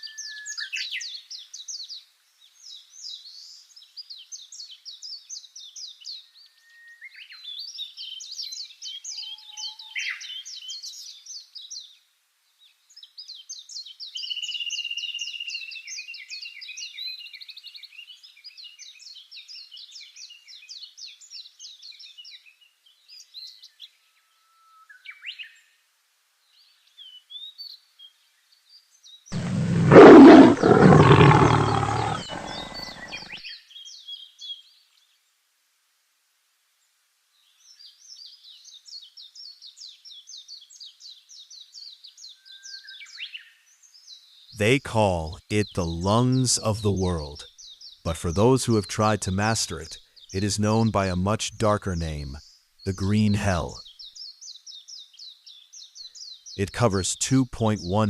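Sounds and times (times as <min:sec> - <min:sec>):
birdsong with rapid trills: 0:29.4 - 0:33.4.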